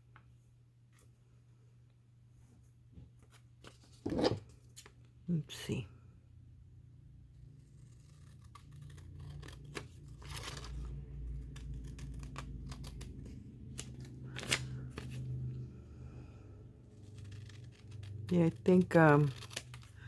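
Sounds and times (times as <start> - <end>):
rasping strokes of paper: 7.6 - 15.3, 16.8 - 20.0
paper rustling: 7.8 - 15.6.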